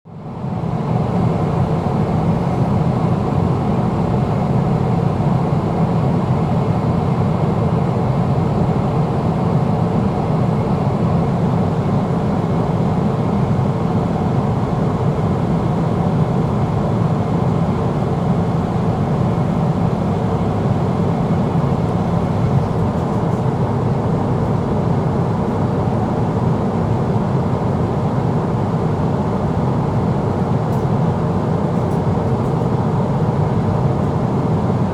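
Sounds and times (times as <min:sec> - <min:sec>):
aircraft cabin rumble: 0:16.5 - 0:25.7.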